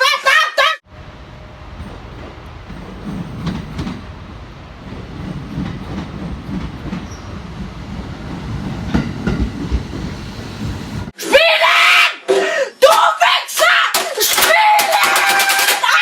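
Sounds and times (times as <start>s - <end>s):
train rumble: 0.8s - 11.2s
wheels clacking over rail joints: 1.7s - 11.1s.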